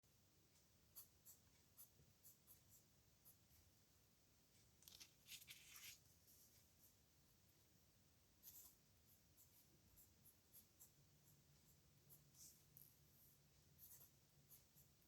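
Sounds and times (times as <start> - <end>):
pen scratching on paper: 8.4 - 15.0.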